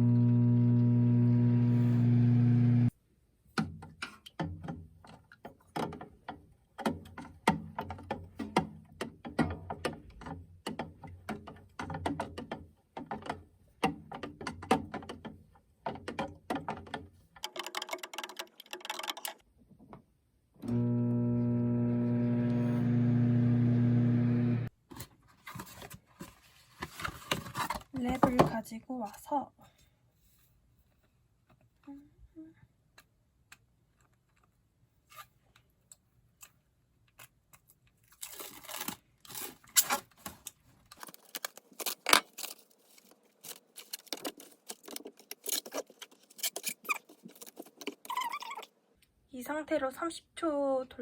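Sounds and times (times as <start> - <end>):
microwave oven humming: 0.0 - 2.9, 20.6 - 24.7.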